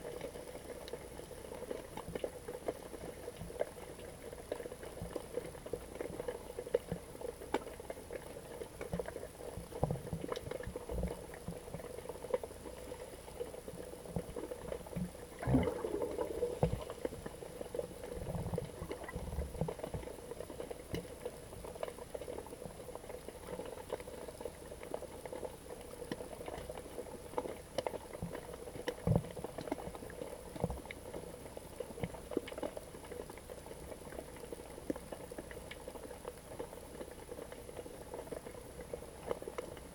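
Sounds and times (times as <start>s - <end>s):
small clicks and crackles: 0.0s - 39.9s
underwater water murmur: 13.0s - 22.4s
water bubbling: 15.1s - 20.0s.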